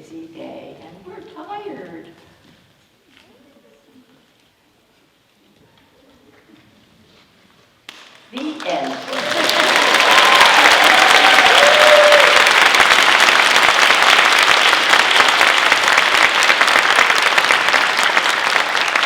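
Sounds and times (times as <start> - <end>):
audience applauding: 7.9 - 19.0
audience cheering: 8.4 - 19.0.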